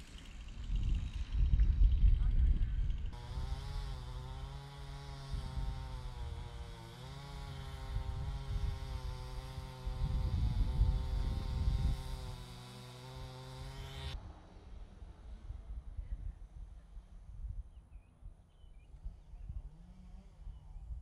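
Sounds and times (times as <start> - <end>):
motor running: 0.0 - 14.2.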